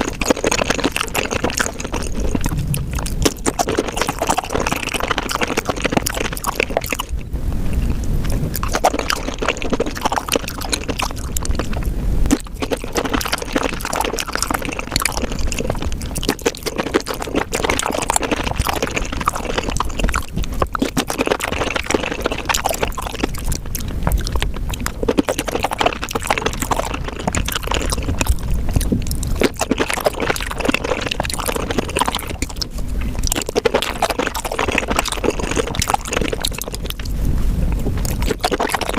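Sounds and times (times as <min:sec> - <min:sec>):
wet chewing and slurping: 0:00.0 - 0:38.9.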